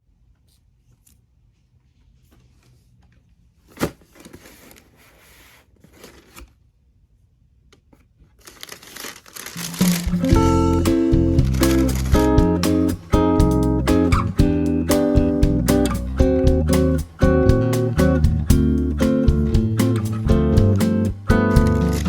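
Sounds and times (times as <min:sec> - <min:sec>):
paper rustling and tearing: 0:03.7 - 0:06.5, 0:08.3 - 0:10.3
strummed acoustic guitar music: 0:09.6 - 0:22.0.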